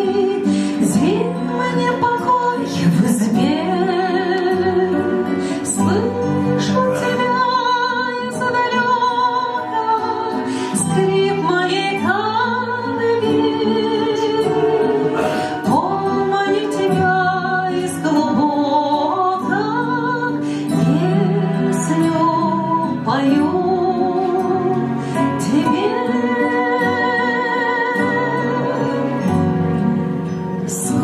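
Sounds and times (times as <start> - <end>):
woman singing with vibrato: 0.0 - 30.0, 30.6 - 31.0.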